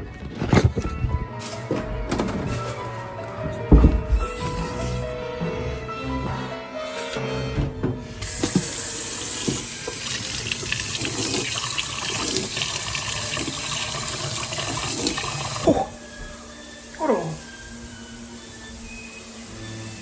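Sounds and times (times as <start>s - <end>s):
water running from tap into sink: 8.2s - 15.9s.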